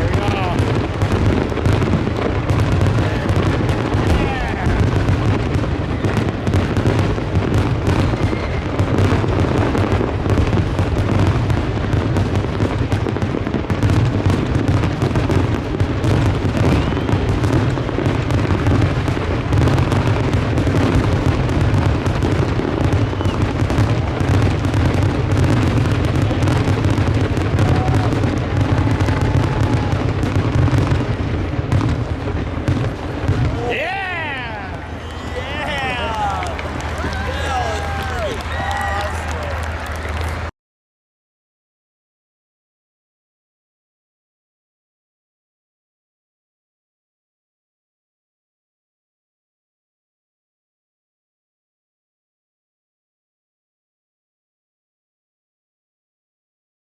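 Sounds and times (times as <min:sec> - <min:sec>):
fireworks bursts and booms: 0:00.0 - 0:40.5.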